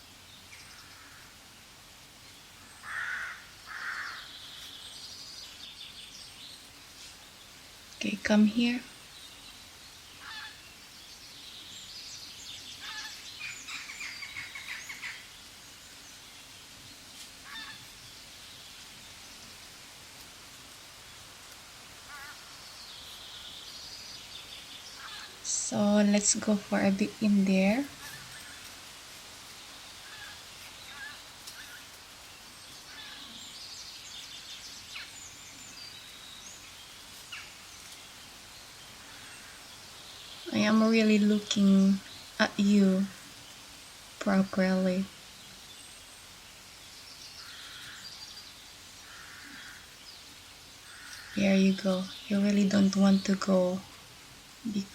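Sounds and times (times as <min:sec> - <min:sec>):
outdoor background hiss: 0:00.0 - 0:54.9
bird chirping: 0:02.3 - 0:19.2.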